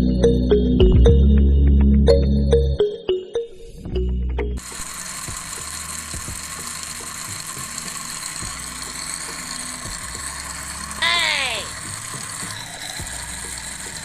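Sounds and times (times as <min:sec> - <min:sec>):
small motor running: 0:04.6 - 0:14.0.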